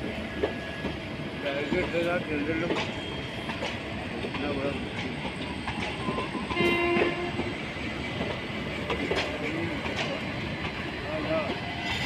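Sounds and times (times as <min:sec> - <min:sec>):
train wheels clicking on rail joints: 0:00.0 - 0:12.0
train horn blast: 0:06.5 - 0:07.5.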